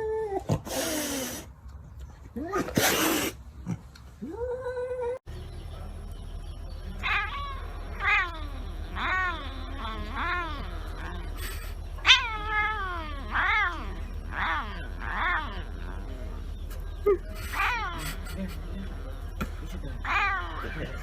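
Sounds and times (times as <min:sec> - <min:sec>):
cat meowing: 0:07.0 - 0:11.4, 0:12.0 - 0:16.2.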